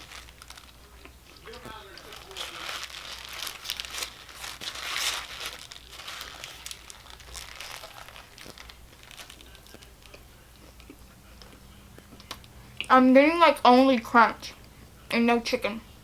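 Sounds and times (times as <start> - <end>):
sandwich wrapper crinkling: 0.0 - 12.6.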